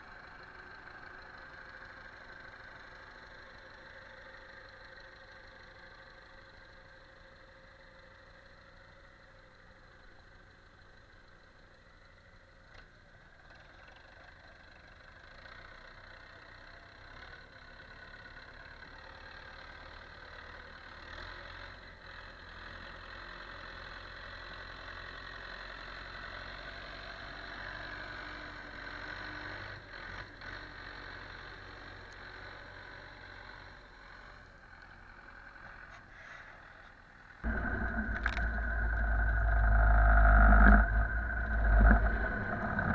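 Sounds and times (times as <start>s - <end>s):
distant engine running: 37.5s - 42.9s
loud engine: 37.5s - 42.9s.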